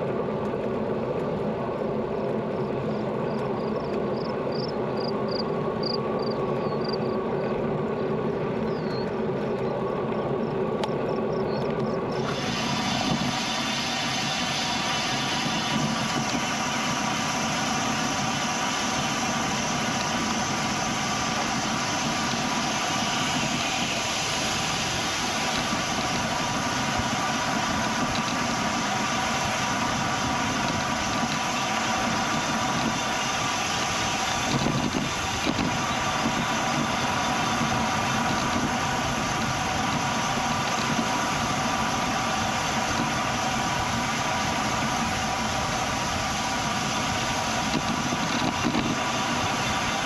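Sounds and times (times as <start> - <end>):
bicycle tyres rolling on pavement: 0.0 - 50.0
wind on microphone: 19.2 - 50.0.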